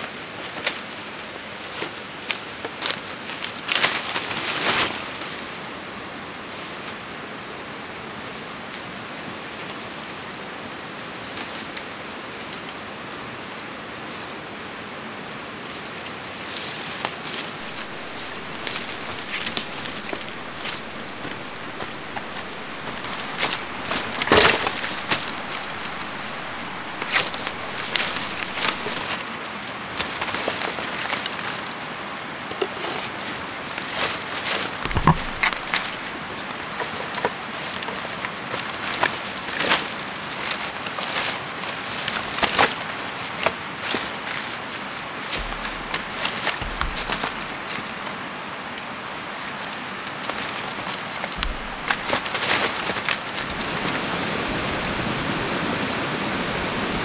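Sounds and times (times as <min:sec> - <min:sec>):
rustling knock: 0:17.6 - 0:29.1, 0:34.9 - 0:36.0, 0:45.4 - 0:47.8, 0:51.4 - 0:53.7
sharp clicks and knocks: 0:17.6 - 0:29.1, 0:34.9 - 0:36.0, 0:45.4 - 0:47.7, 0:51.4 - 0:53.6
small bird chirping: 0:17.6 - 0:29.1, 0:34.9 - 0:36.0
steady rushing background: 0:17.6 - 0:29.1.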